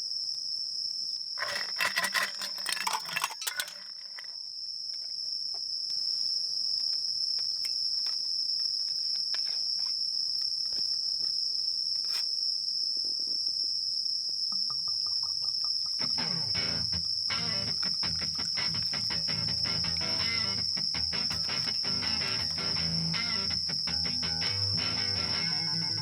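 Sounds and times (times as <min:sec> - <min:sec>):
insects chirring: 0:00.0 - 0:26.0
light metallic clinks: 0:01.4 - 0:04.4
small ticks: 0:06.8 - 0:12.3, 0:14.3 - 0:24.2
soft guitar music: 0:16.0 - 0:26.0.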